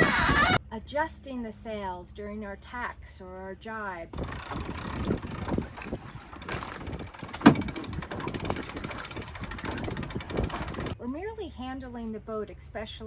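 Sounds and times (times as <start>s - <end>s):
winch ratcheting clicks: 4.2s - 11.0s
wind on microphone: 4.2s - 11.0s.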